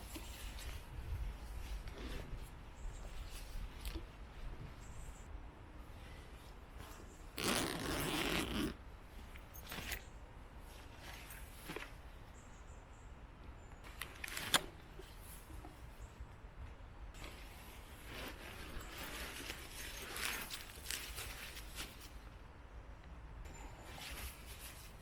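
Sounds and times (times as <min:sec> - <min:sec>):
zip-like scrape: 0:06.8 - 0:08.8.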